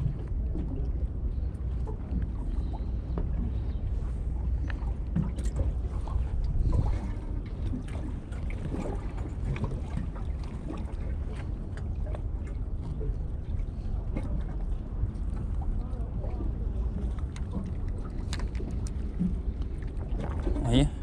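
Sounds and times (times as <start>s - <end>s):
wind buffeting microphone: 0.0s - 21.0s
small clicks and splashes: 4.5s - 20.9s.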